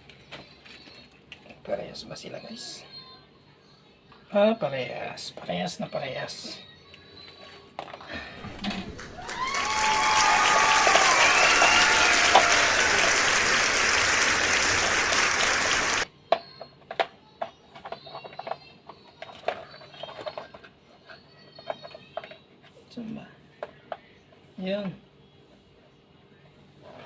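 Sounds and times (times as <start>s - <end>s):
crowd applauding and cheering: 8.4s - 16.1s.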